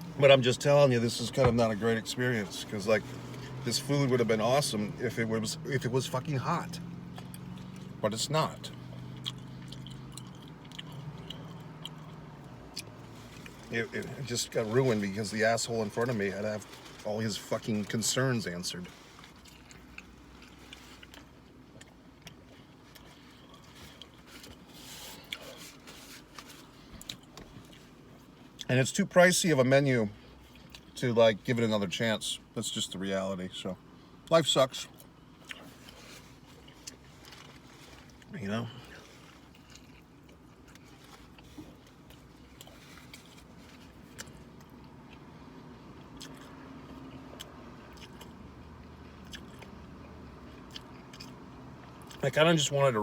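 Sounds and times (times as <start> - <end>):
steady low hum: 0.0 - 53.0
chewing a burger: 1.0 - 28.7, 30.1 - 31.1, 34.7 - 52.3
food rustling: 35.6 - 38.3.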